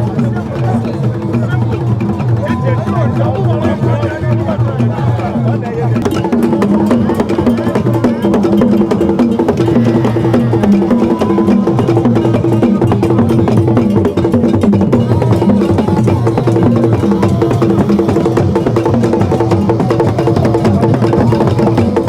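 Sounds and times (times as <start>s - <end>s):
drums playing low pattern: 6.0s - 22.0s.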